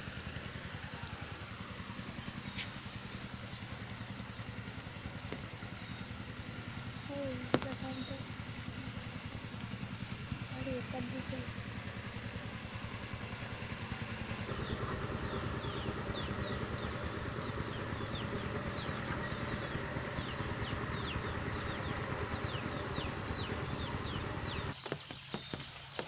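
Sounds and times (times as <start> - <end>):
motorcycle engine idling: 0.0 - 26.0
scattered taps: 7.3 - 8.2.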